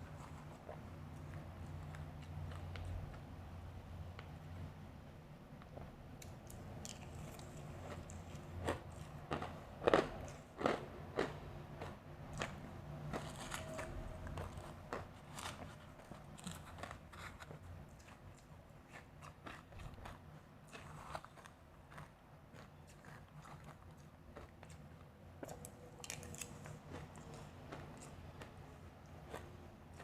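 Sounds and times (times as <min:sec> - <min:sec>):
ice being chewed with crunches: 0:06.4 - 0:30.0.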